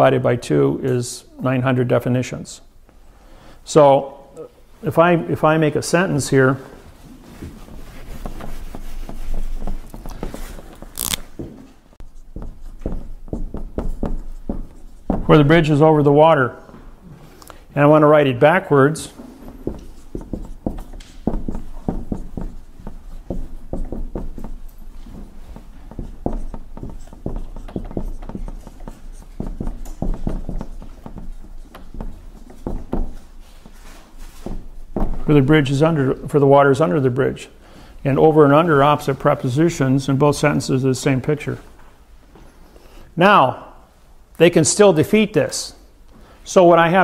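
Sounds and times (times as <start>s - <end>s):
marker scratching on whiteboard: 12.0s - 15.8s, 19.5s - 35.2s.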